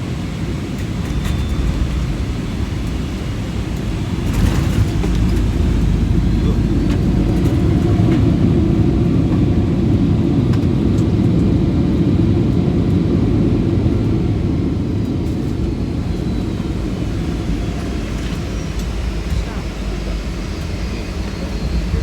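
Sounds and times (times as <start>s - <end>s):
airliner engine and airflow roar: 0.0s - 22.0s.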